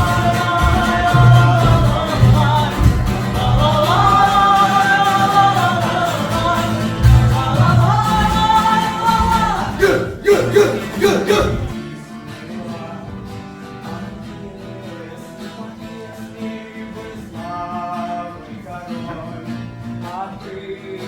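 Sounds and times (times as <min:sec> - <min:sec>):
person singing: 0:00.0 - 0:13.1
instrumental backing: 0:00.0 - 0:13.6.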